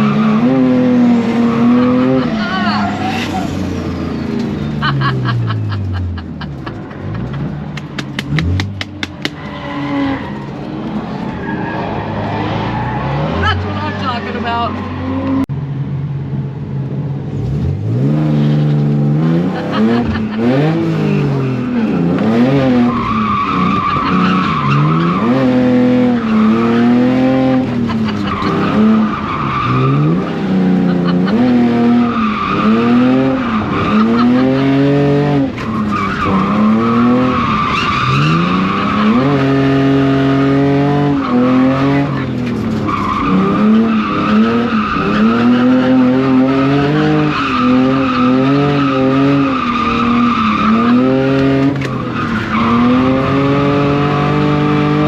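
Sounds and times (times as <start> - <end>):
car engine revving: 0.0 - 15.6, 17.2 - 55.0
tyres squealing: 19.6 - 53.8.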